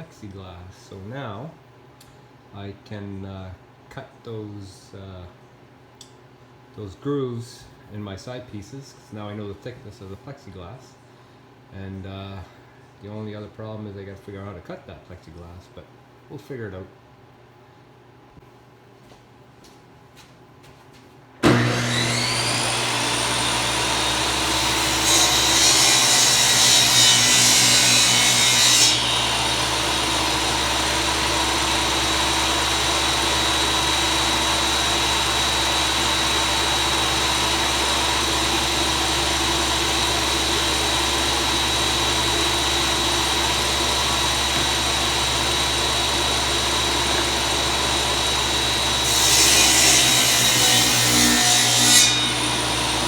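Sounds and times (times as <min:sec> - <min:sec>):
power saw cutting wood: 0:21.4 - 0:53.0.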